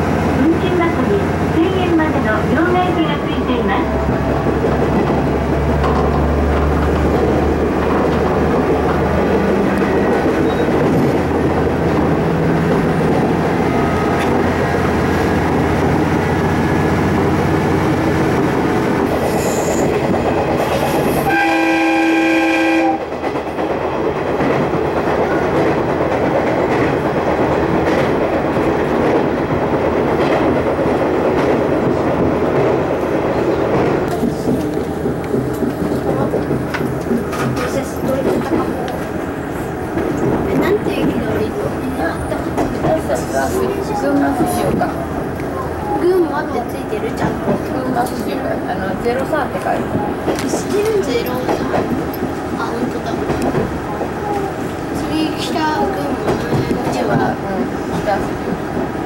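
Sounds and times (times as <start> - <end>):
train wheels rumbling on rails: 0.0 - 59.0
train horn blast: 21.2 - 23.1.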